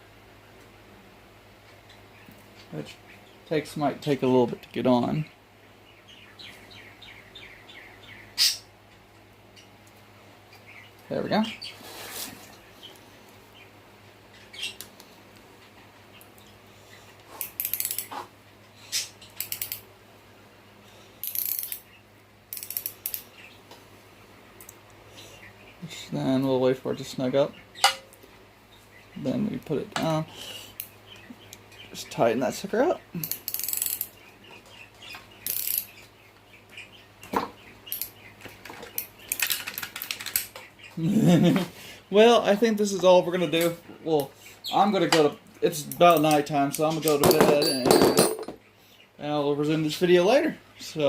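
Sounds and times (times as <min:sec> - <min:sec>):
socket ratchet clicking: 0:17.5 - 0:18.1, 0:19.4 - 0:19.8, 0:21.2 - 0:21.8, 0:22.5 - 0:23.2, 0:33.2 - 0:34.1.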